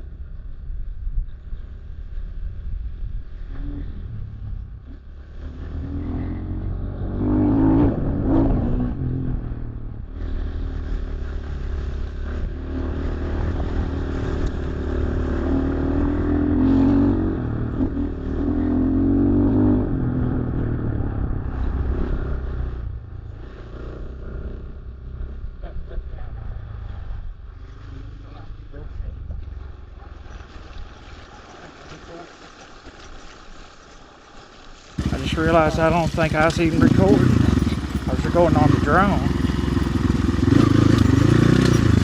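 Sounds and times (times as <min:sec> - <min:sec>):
dirt bike engine revving: 0:05.4 - 0:20.7, 0:35.0 - 0:42.0
clatter: 0:35.0 - 0:42.0.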